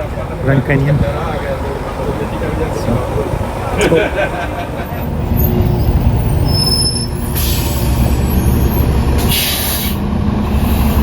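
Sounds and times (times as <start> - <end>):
bus engine idling: 0.0 - 11.0
air brake hisses: 7.3 - 8.0, 9.2 - 10.0.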